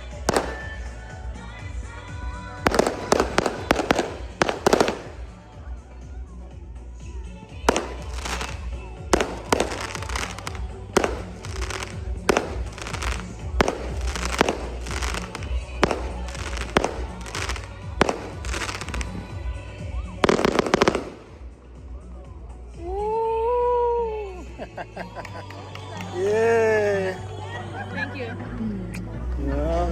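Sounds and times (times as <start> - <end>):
fireworks banging: 0.0 - 1.0, 2.6 - 5.4, 7.6 - 19.6, 20.2 - 21.6
fireworks crackling: 0.0 - 5.8, 7.5 - 22.0
music: 0.0 - 29.9.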